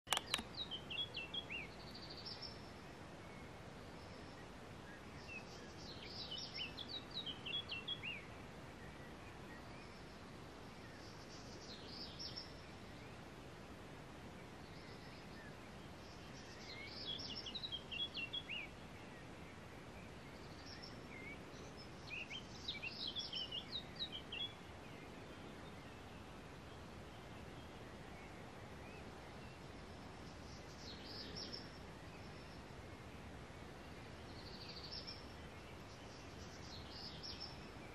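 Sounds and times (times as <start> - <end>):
songbird chirping: 0.0 - 37.9
sharp click: 0.1 - 0.5
faint hiss: 0.1 - 37.9.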